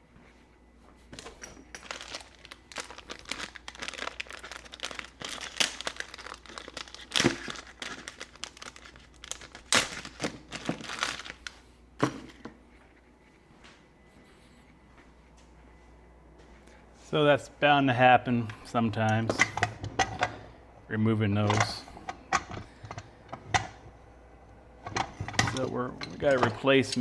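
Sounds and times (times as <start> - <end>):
plastic packaging crinkling: 1.1 - 12.4.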